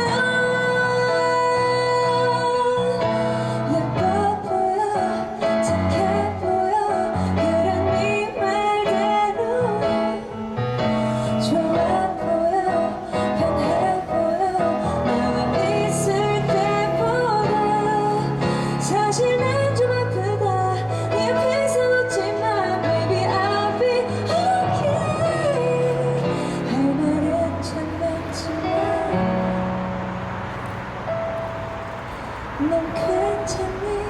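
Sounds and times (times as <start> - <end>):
woman singing: 0.0 - 29.7, 32.6 - 34.0.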